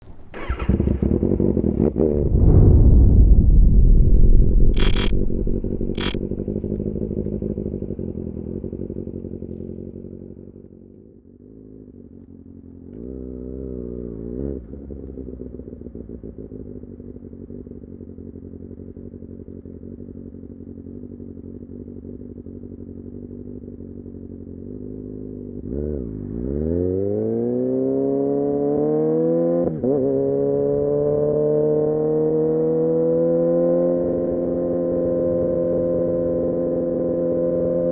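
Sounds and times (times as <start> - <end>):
motorcycle engine idling and revving: 0.0 - 2.4, 4.7 - 37.9
sharp clicks: 4.8 - 6.2.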